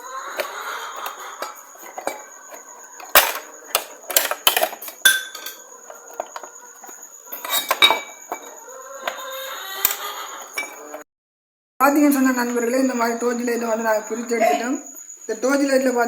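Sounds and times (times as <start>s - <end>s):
plastic casing clicking apart: 0.4s - 6.5s.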